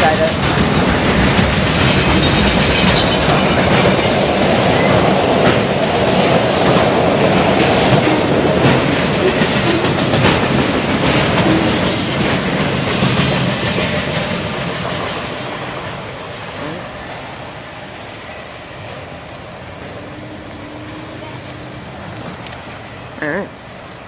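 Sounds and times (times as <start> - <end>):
freight train rumbling past: 0.0 - 24.0
wheels clicking over rail joints: 0.0 - 24.0
high-pitched screech: 11.0 - 12.8.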